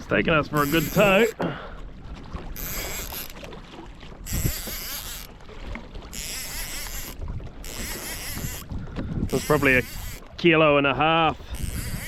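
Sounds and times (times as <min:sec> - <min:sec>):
water splashing along a hull: 0:00.0 - 0:12.0
low wind rumble: 0:04.2 - 0:10.4.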